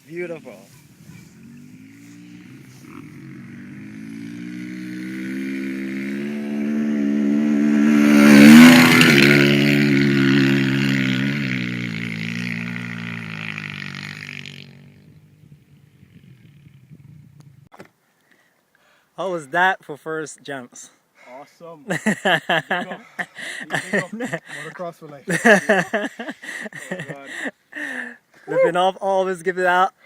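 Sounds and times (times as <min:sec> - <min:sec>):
dirt bike engine passing: 0:00.7 - 0:17.6, 0:25.3 - 0:27.5.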